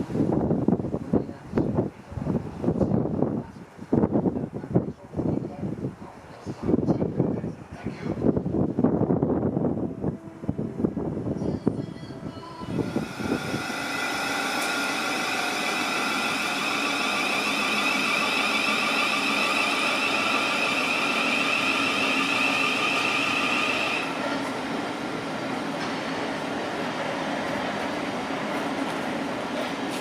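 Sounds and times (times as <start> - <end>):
electric train traction whine: 9.4 - 30.0.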